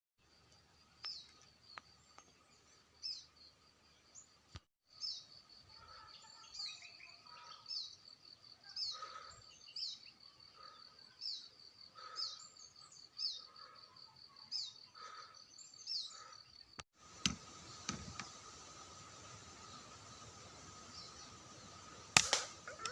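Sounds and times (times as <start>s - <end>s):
songbird calling: 1.0s - 22.9s
sharp cracks: 22.1s - 22.9s.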